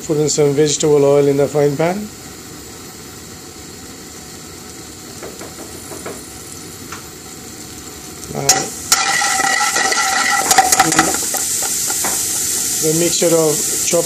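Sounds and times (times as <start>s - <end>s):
peppers sizzling in hot oil: 0.4s - 14.0s
frying pan clattering on burner: 5.2s - 6.3s, 8.4s - 12.5s.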